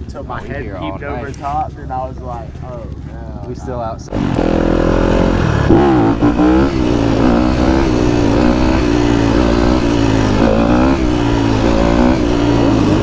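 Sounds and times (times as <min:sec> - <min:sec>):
vehicle engine revving: 0:04.0 - 0:13.0.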